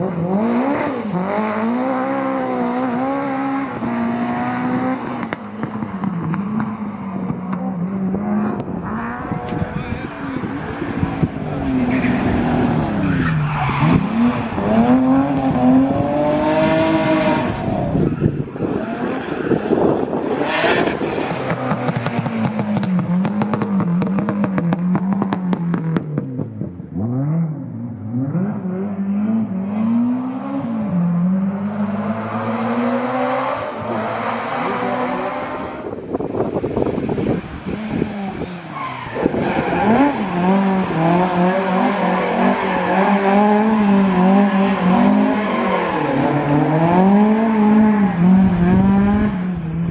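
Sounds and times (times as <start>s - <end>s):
rally car engines revving: 0.0s - 49.9s.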